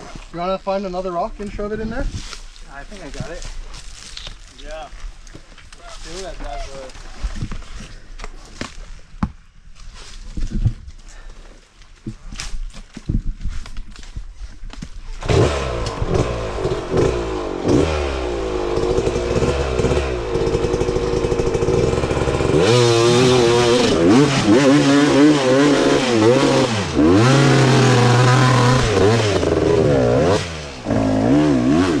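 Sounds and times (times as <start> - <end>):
dirt bike engine revving: 15.2 - 32.0.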